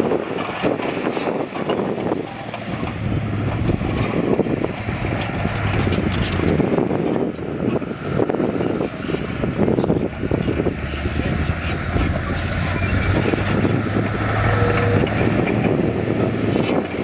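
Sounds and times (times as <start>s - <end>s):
diesel engine drone: 0.0s - 17.0s
rough uneven rattling: 0.1s - 17.0s.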